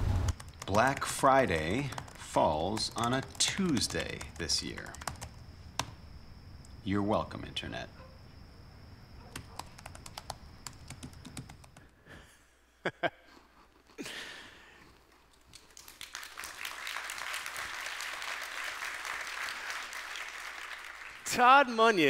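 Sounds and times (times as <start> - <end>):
keyboard typing: 0.2 - 5.9, 9.3 - 11.9
audience applause: 15.5 - 21.8.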